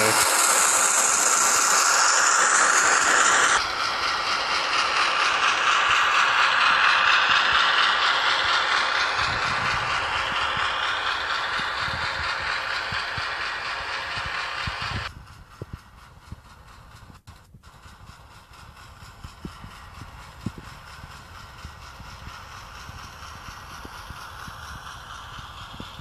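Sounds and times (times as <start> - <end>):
motor and gears whirring: 0.0 - 15.1
diesel engine sound from small speaker: 0.0 - 15.7.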